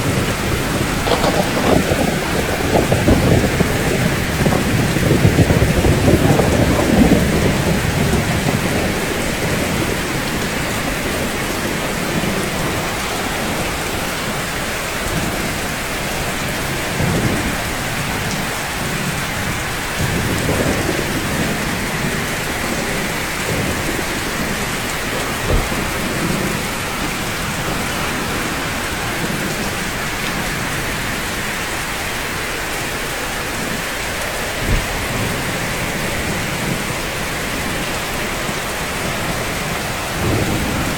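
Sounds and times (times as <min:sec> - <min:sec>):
distant thunder rumbles: 0:00.0 - 0:14.4, 0:33.4 - 0:40.9
rain on rooftops: 0:00.0 - 0:40.9.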